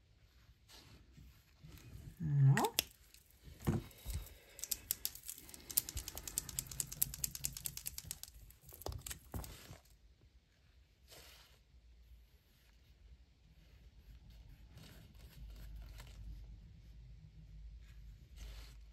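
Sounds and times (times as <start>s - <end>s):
paint markers clicking: 4.0s - 9.5s.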